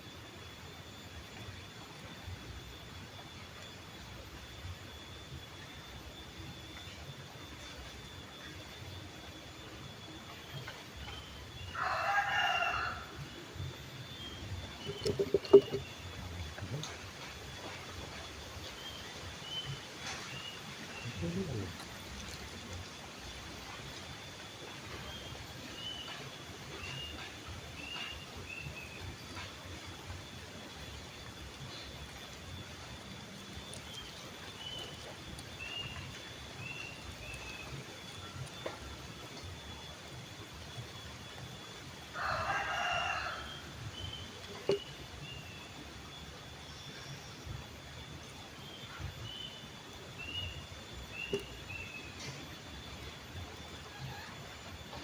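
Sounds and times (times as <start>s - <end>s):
faint constant high tone: 0.0s - 55.0s
rooster crowing: 11.7s - 13.3s, 42.1s - 43.8s.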